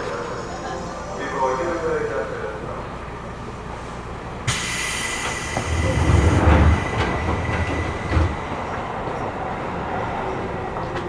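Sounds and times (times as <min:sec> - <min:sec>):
low train rumble: 0:00.0 - 0:11.0
train rushing noise: 0:00.0 - 0:11.0.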